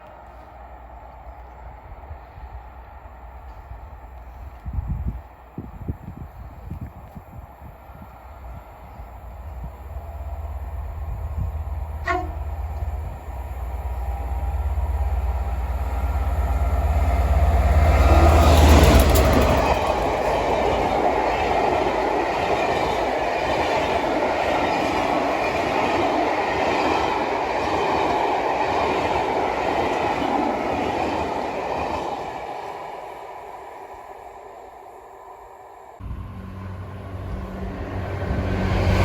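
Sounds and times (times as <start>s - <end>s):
train engine rumble: 0.0s - 39.0s
train wheels clattering on rails: 17.6s - 32.6s.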